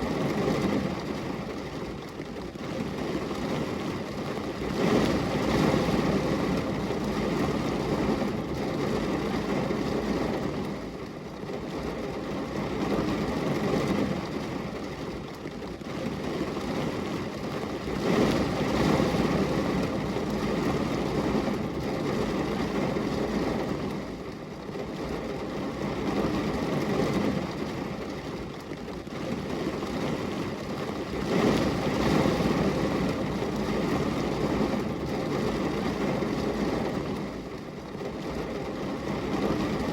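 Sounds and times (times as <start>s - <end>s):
rain on a glass window: 0.0s - 39.9s.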